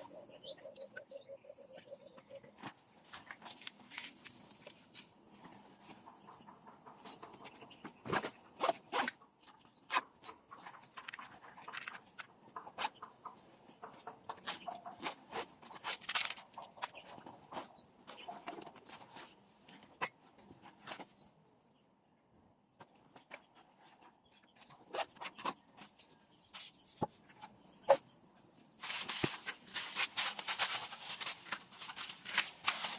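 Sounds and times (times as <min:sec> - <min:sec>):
objects being handled: 0:28.8 - 0:32.9.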